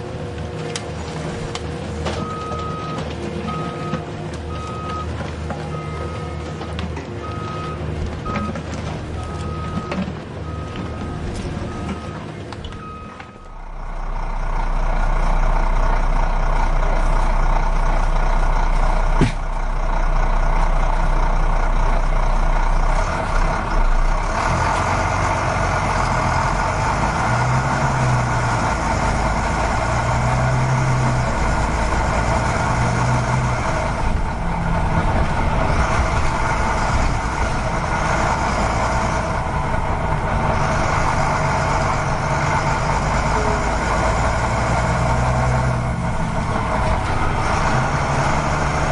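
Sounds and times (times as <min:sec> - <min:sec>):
model truck engine drone: 0:10.3 - 0:48.9.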